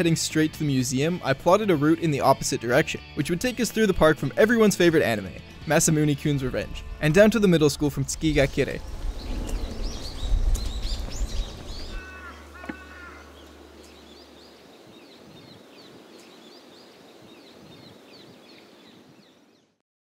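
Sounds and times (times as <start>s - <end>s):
low rumble: 6.2s - 12.6s
small birds chirping: 8.2s - 19.8s
low bird call: 8.8s - 18.8s.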